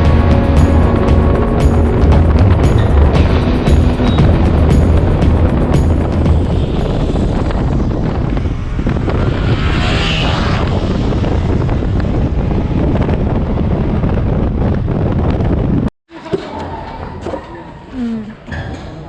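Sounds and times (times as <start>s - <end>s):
motorcycle engine: 0.0s - 13.1s
road rumble: 0.0s - 15.8s
wind buffeting microphone: 0.0s - 15.9s.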